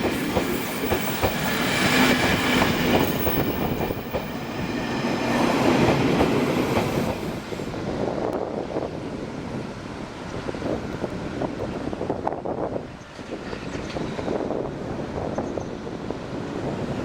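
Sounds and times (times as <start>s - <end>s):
train wheels clattering on rails: 0.0s - 7.6s.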